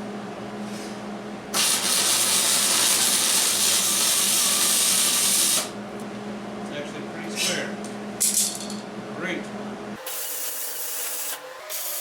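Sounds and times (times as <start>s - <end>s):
low electrical hum: 0.0s - 10.1s
welder hissing: 1.6s - 5.7s.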